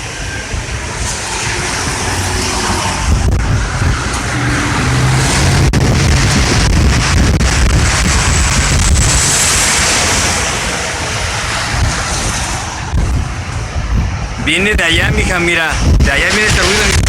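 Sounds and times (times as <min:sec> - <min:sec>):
loud low droning: 0:00.0 - 0:17.0.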